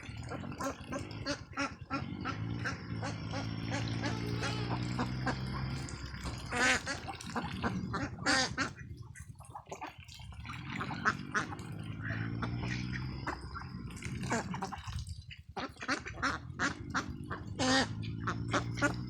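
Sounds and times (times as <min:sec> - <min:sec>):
steady low hum: 0:00.0 - 0:09.5, 0:10.4 - 0:15.2
ducks quacking: 0:00.0 - 0:19.0.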